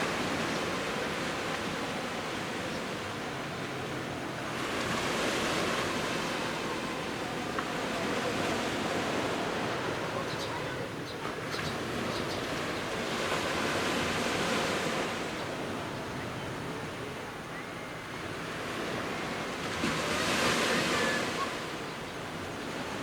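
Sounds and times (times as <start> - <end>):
sea waves breaking on beach: 0.0 - 10.2, 18.4 - 23.0.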